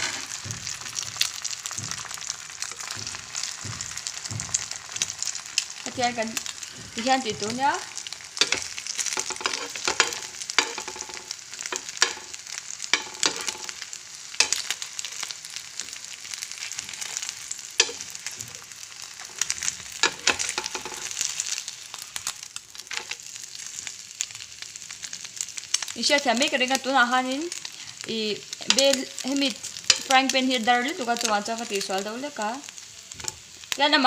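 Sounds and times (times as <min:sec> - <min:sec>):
steel spoon scraping pan: 0:00.0 - 0:00.4, 0:07.0 - 0:13.8, 0:16.6 - 0:18.3, 0:29.8 - 0:30.4
egg roll sizzling in pan: 0:00.0 - 0:34.0.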